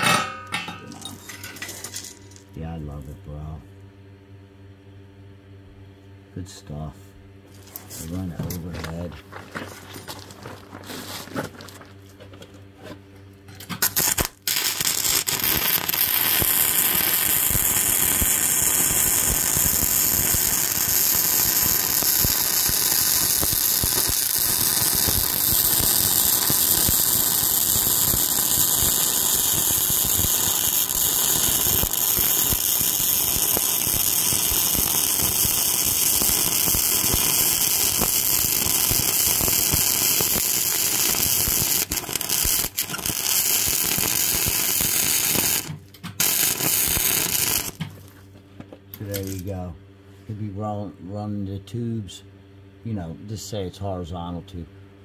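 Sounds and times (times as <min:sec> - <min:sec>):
welding arc crackling hiss: 0:13.8 - 0:48.0, 0:49.0 - 0:49.6.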